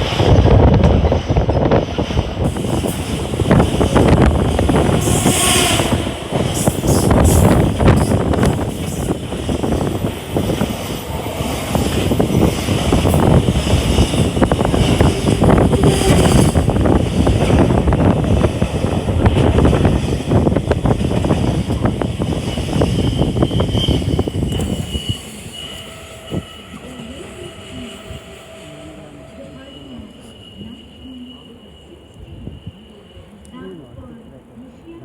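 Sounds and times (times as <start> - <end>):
train brake squeal: 2.5 - 9.9, 22.3 - 34.5.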